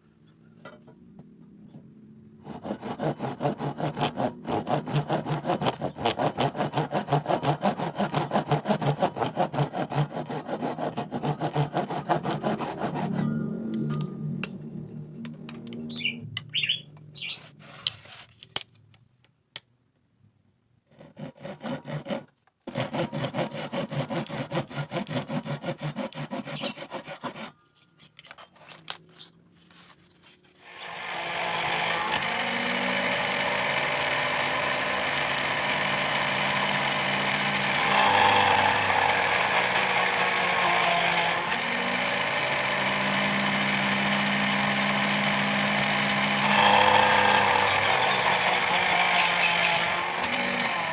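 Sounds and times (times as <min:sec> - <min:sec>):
bamboo being sawn by hand: 0:02.5 - 0:13.2, 0:20.9 - 0:30.7, 0:35.8 - 0:50.9.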